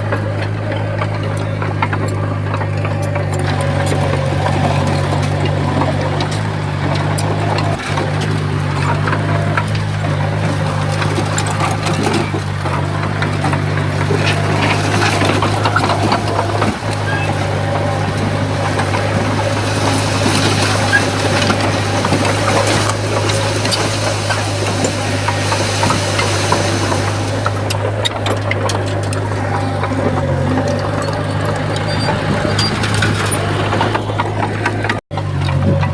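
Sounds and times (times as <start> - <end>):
diesel engine running: 0.0 - 35.9
metal clicks and clanks: 0.0 - 35.9.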